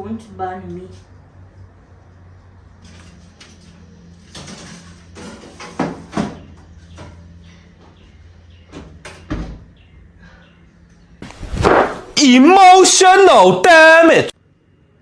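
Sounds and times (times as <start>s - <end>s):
baking tray clattering: 2.8s - 7.3s.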